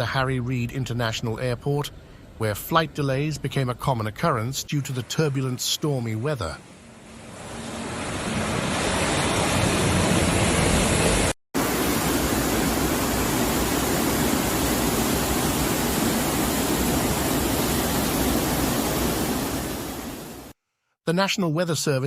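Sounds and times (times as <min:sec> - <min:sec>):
floodwater rushing: 0:06.0 - 0:20.5.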